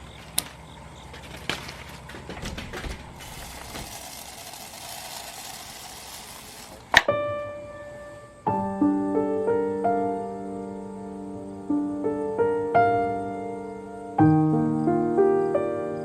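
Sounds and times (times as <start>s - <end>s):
background noise: 6.2s - 16.0s
piano music: 6.6s - 16.0s.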